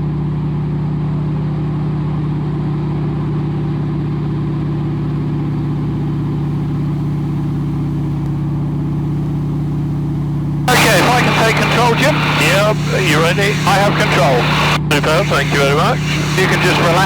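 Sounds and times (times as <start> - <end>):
aircraft radial engine droning: 4.4 - 17.0.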